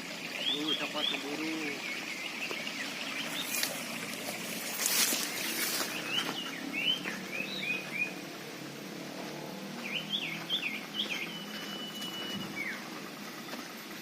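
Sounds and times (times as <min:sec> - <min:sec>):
bird chirping: 0:00.3 - 0:03.9, 0:05.0 - 0:08.3, 0:09.6 - 0:13.6
bird whistle: 0:05.8 - 0:08.2, 0:09.8 - 0:12.9.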